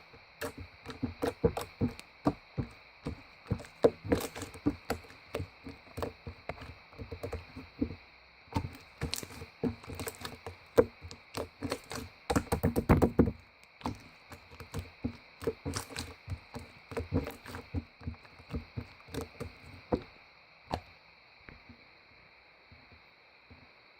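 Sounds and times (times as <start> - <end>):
faint high-pitched whine: 0.0 - 23.9
objects knocking and clicking: 0.4 - 8.0, 8.6 - 20.1.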